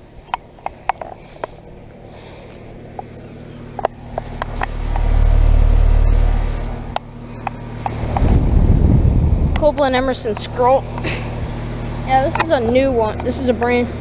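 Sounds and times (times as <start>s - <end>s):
heat pump unit humming: 0.0s - 14.0s
low rumble: 3.1s - 10.1s.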